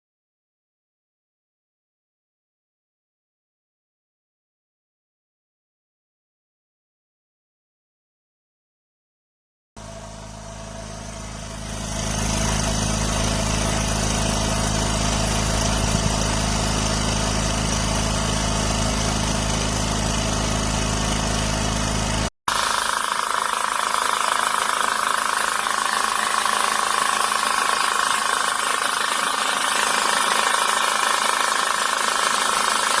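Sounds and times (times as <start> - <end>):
air compressor motor running: 9.8 - 33.0
harsh hissy running sound: 22.5 - 33.0.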